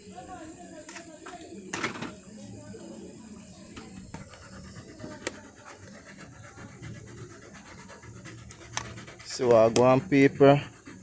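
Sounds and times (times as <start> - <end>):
nutmeg being grated: 5.0 - 11.0.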